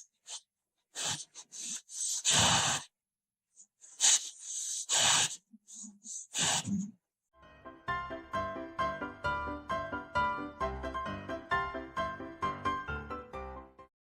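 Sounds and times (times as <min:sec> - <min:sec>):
dog snorting and huffing: 0:01.0 - 0:02.9, 0:04.0 - 0:06.9.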